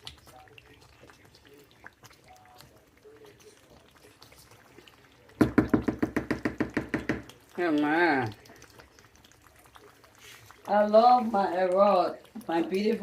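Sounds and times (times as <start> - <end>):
rapid even knocking: 5.4 - 7.3.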